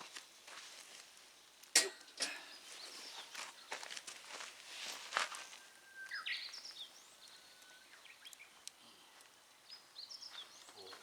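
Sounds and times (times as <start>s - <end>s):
bird singing whistled notes: 5.4s - 8.6s.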